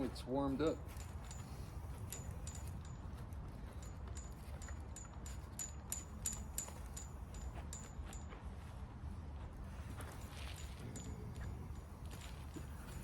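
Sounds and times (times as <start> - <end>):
sharp ringing ticks: 0.8 - 8.4
wind rumble on microphone: 0.8 - 13.0.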